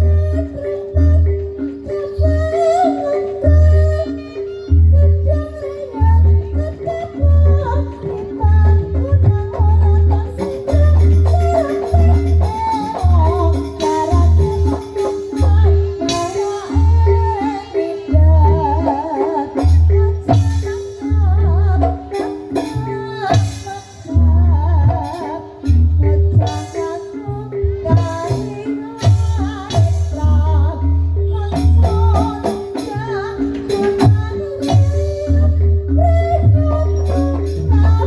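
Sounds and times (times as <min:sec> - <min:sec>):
wavering melody with vibrato: 0:00.0 - 0:38.0.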